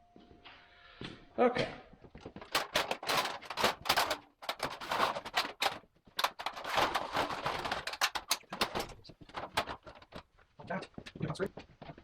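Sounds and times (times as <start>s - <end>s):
hardware clattering: 2.4s - 10.3s.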